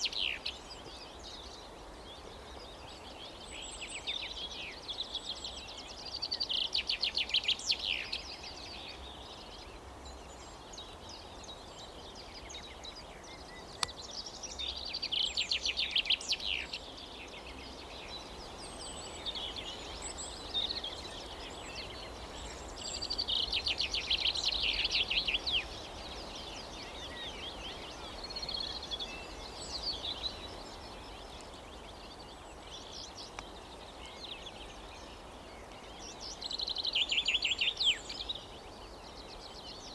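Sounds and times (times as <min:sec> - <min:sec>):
low background noise: 0:00.0 - 0:39.9
songbirds singing trilled phrases: 0:00.0 - 0:39.9.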